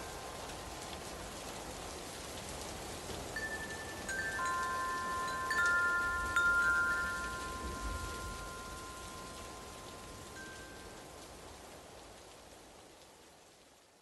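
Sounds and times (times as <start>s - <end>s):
rain hissing: 0.0s - 14.0s
wind chime ringing: 3.4s - 11.0s.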